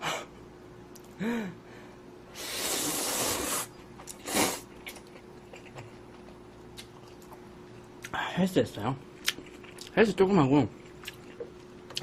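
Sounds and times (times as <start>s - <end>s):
man breathing while eating: 1.1s - 3.7s.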